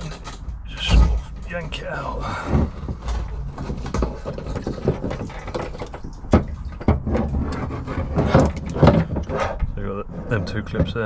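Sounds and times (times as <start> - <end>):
fuel spilling: 0.4 - 10.5
plastic knocks and rattles: 2.4 - 11.0.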